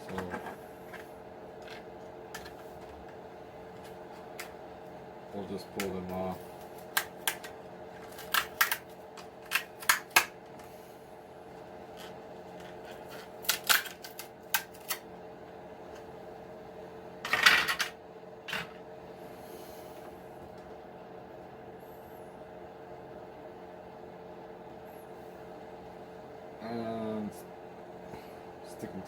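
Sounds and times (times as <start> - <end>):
faint steady hum: 0.0 - 29.0
plastic parts clicking and clattering: 12.0 - 15.0, 17.2 - 18.8.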